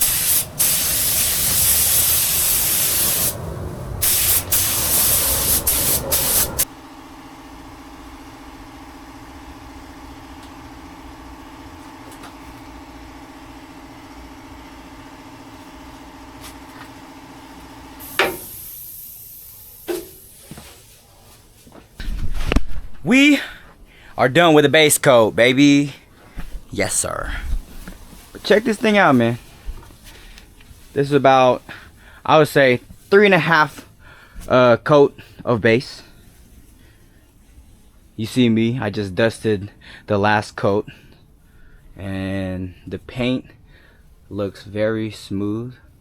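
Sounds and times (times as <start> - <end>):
paint spray gun hissing: 0.0 - 6.7, 17.9 - 20.6
motor hum: 3.0 - 18.5.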